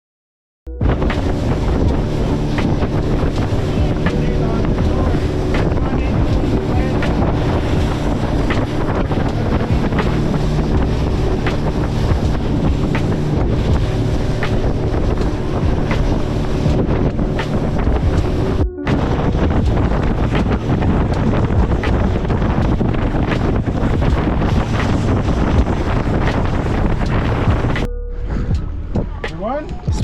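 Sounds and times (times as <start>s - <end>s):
steady low hum: 0.7s - 20.6s
water noise: 0.7s - 30.0s
wind buffeting microphone: 0.7s - 30.0s.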